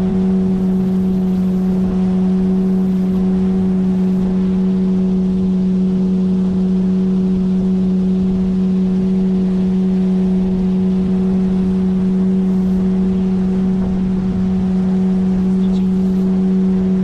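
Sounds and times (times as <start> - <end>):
outboard motor droning: 0.0 - 17.0.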